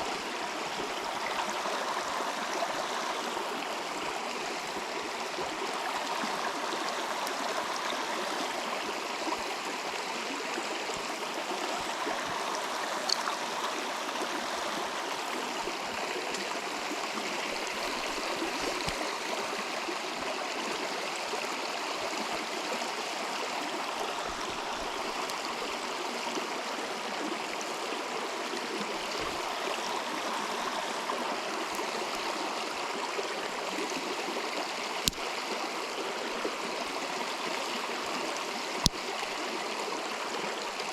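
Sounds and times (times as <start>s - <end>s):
river flowing: 0.0s - 40.9s
faint sharp clicks: 13.0s - 13.3s, 17.7s - 19.1s, 35.0s - 35.4s.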